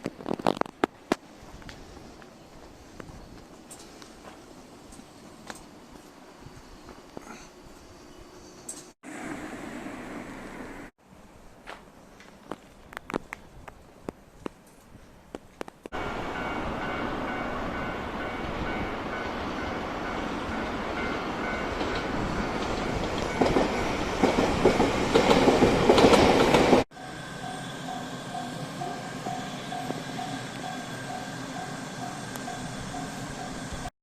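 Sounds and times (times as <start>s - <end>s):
level crossing warning bell: 16.0s - 24.1s, 26.9s - 33.9s
train wheels clacking over rail joints: 21.7s - 26.8s.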